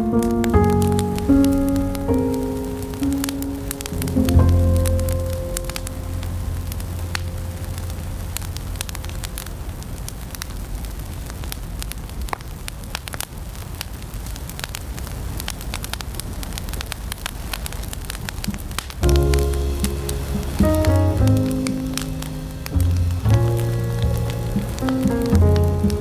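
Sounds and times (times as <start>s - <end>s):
music track: 0.0s - 9.5s, 19.0s - 26.0s
wood fire crackling: 0.0s - 26.0s.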